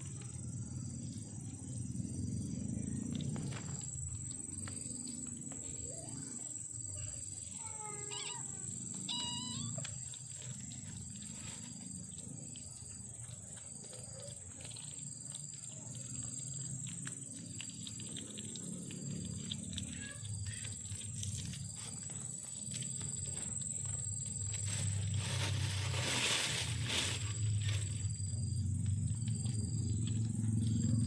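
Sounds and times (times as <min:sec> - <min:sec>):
kitten high-pitched cries: 0:07.6 - 0:09.9.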